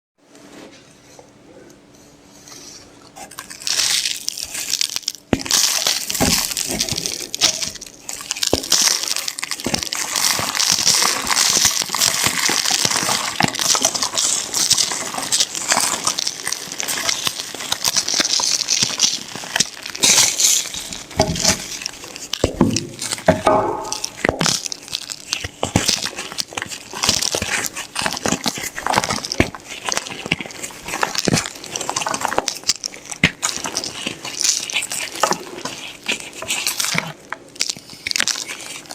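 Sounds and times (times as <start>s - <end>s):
chalk crushed by hand: 3.2s - 38.9s.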